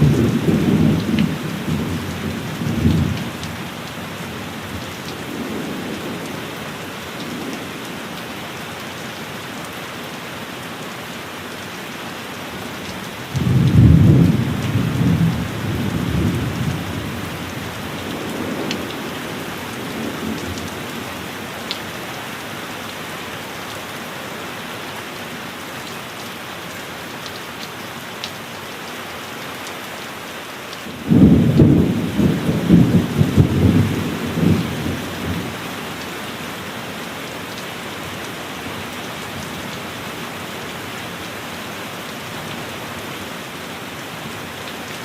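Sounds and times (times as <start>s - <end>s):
heavy rain: 0.0s - 45.0s
thunderclap rumbling: 13.4s - 21.0s, 31.0s - 35.6s.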